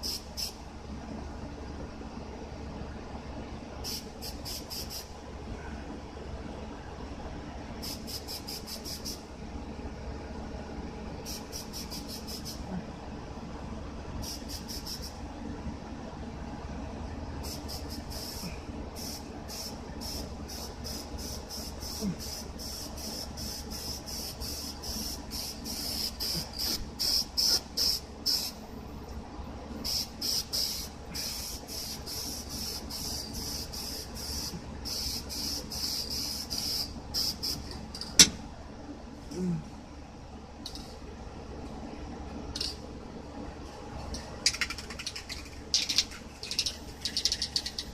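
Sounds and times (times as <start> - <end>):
spray paint can hissing bursts: 0.0 - 0.6, 3.9 - 5.1, 7.8 - 9.2, 11.3 - 12.6, 14.2 - 15.1, 17.4 - 18.4, 19.0 - 28.5, 29.8 - 37.6, 44.4 - 47.9
sharp click: 38.0 - 38.4.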